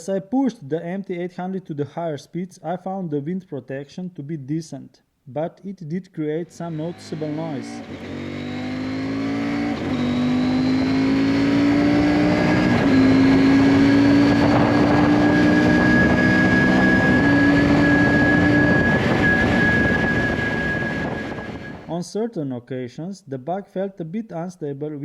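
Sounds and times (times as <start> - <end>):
motorcycle engine accelerating: 6.5 - 21.9
wind noise: 11.8 - 21.9.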